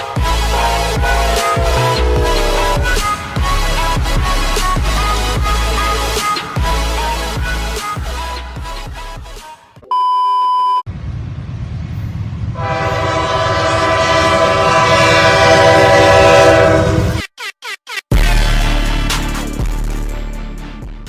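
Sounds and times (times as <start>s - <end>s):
locomotive air horn: 0.0s - 6.2s, 12.6s - 17.3s
train rumbling: 0.0s - 9.2s, 10.9s - 17.2s.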